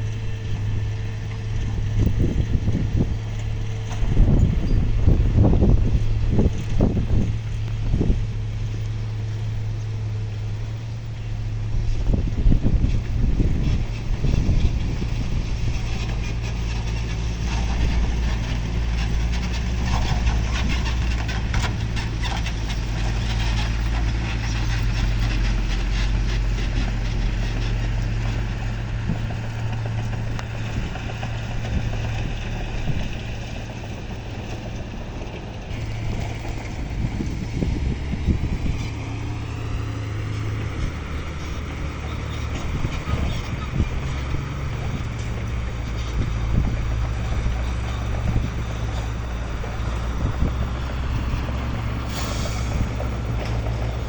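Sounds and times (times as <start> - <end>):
heavy diesel engine droning: 0.0 - 54.0
rattling clatter: 10.8 - 54.0.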